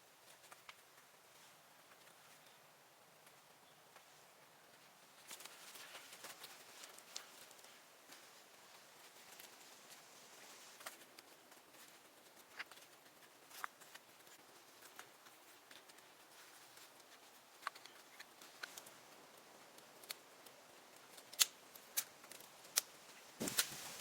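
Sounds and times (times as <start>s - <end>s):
sharp clicks and snaps: 17.0s - 23.7s.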